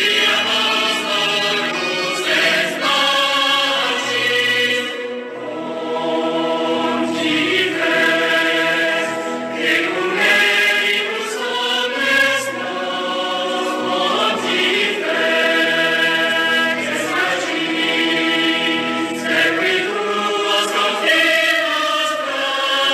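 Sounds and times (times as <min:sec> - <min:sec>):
choir singing held notes: 0:00.0 - 0:22.9.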